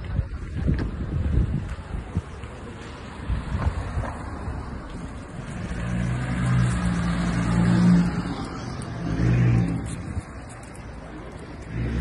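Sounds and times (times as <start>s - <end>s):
car engine revving: 5.4s - 10.2s.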